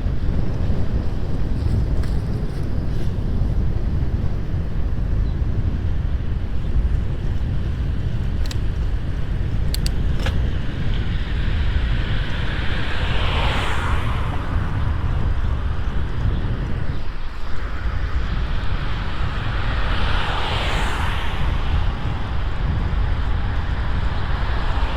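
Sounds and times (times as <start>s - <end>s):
wind rumble on microphone: 0.0s - 24.9s
sharp clicks: 9.7s - 10.4s
vehicle passing: 10.9s - 16.8s, 17.6s - 24.9s.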